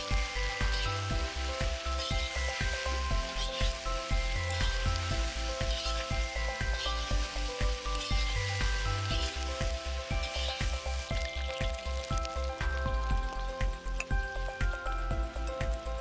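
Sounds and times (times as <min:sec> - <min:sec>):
background music with bass beat: 0:00.0 - 0:16.0
mushrooms sizzling in a pan: 0:00.0 - 0:16.0.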